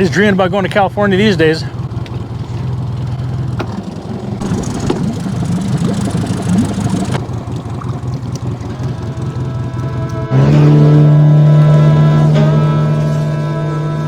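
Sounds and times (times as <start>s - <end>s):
boat motor running: 0.0s - 14.0s.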